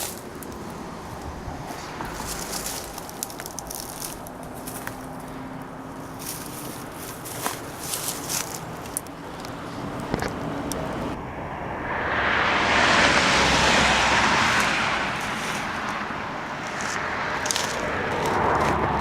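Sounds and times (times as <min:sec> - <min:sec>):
car passing by: 0:00.0 - 0:19.0.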